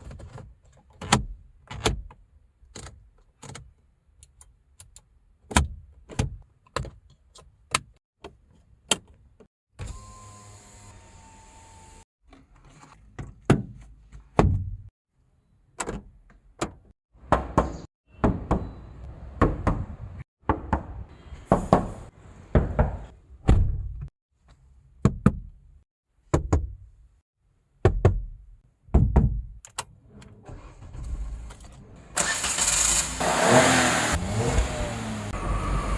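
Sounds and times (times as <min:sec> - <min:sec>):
car body parts thudding: 0:21.5 - 0:24.1
car engine starting and running: 0:30.1 - 0:35.9.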